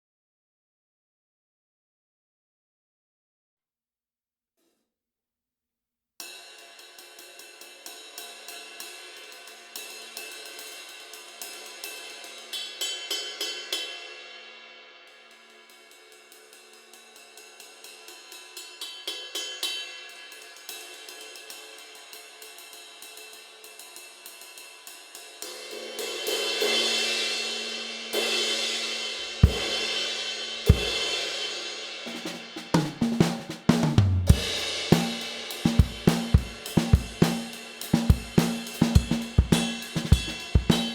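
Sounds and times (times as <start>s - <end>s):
ride cymbal played with stick: 6.3s - 40.9s
snare drum hits: 32.1s - 40.9s.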